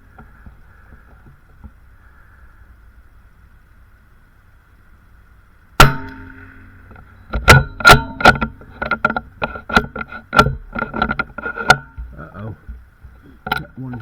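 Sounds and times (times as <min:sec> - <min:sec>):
rifle shot: 0:05.8 - 0:06.8, 0:07.4 - 0:08.5.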